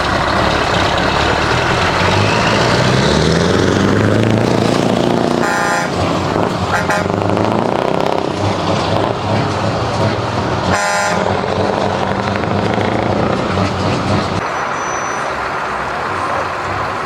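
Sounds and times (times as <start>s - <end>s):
heavy vehicle engines running: 0.0s - 17.0s
horn blast: 5.2s - 8.2s, 9.0s - 14.4s.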